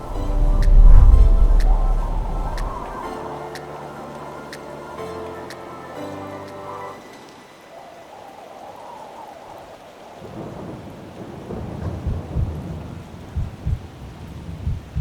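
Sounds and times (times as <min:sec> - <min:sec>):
loud low thunder booms: 0:00.0 - 0:03.0, 0:10.3 - 0:15.0
thunder rumbling: 0:00.0 - 0:03.1, 0:10.2 - 0:15.0
steady rain: 0:00.0 - 0:15.0.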